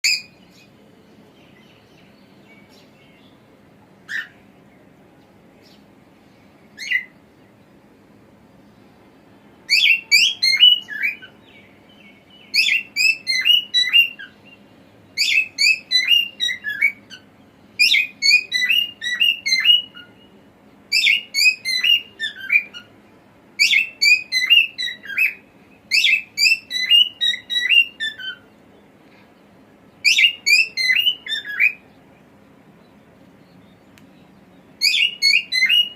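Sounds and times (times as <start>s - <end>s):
cockatiel chirping and whistling: 6.8s - 7.1s, 9.7s - 11.3s, 12.5s - 14.4s, 15.2s - 17.2s, 17.8s - 20.1s, 20.9s - 22.9s, 23.6s - 28.4s, 30.0s - 31.8s, 34.8s - 35.9s.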